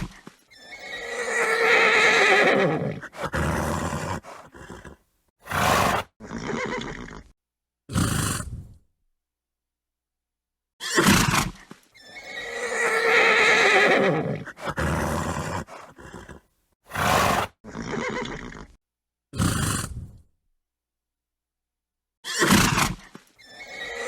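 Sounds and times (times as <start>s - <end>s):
horse neighing: 0.0s - 7.3s, 12.0s - 18.8s, 22.3s - 24.0s
horse snorting: 0.0s - 7.3s, 7.9s - 8.8s, 11.0s - 18.8s, 19.4s - 20.2s.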